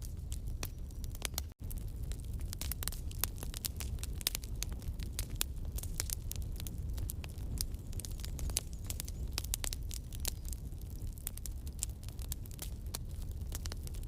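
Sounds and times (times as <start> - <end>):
burning wood popping and crackling: 0.0 - 14.0
campfire low rumble: 0.0 - 14.0.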